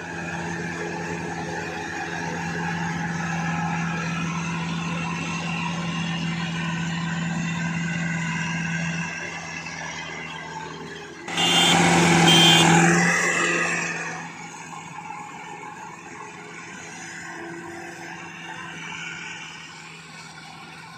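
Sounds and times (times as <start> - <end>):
harvesting machine engine humming: 0.0 - 14.7.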